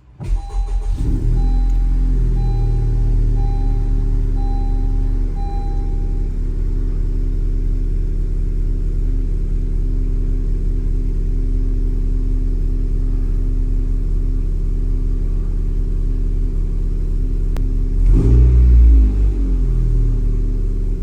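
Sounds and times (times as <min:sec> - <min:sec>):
car engine idling: 0:00.0 - 0:18.2, 0:19.5 - 0:21.0
engine throttle blip: 0:00.2 - 0:06.4.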